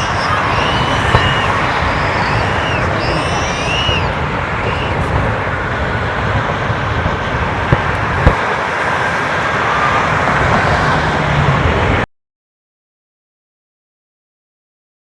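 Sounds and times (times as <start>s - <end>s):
freeway traffic roar: 0.0s - 12.1s.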